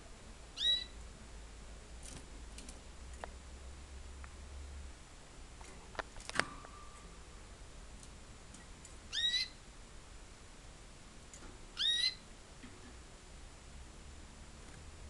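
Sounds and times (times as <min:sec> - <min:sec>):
canary chirps: 0:00.5 - 0:01.0, 0:08.5 - 0:09.7, 0:11.7 - 0:12.4.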